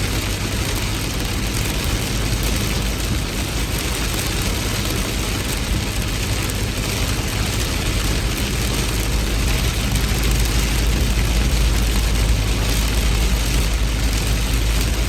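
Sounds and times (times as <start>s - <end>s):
heavy rain: 0.0s - 15.0s
low rumble: 7.9s - 15.0s.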